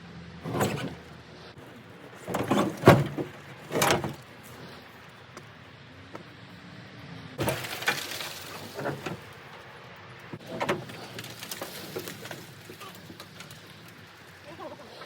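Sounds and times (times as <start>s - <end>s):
loud metal clanks and knocks: 2.2s - 4.2s.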